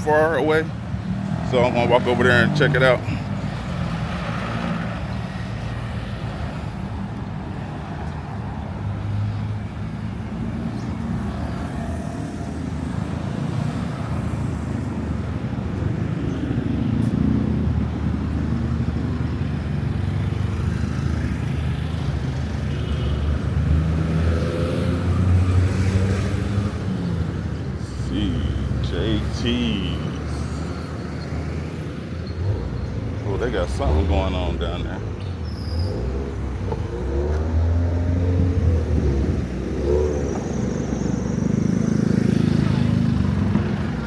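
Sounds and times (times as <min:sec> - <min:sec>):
passing cars and motorbikes: 0:00.0 - 0:44.0.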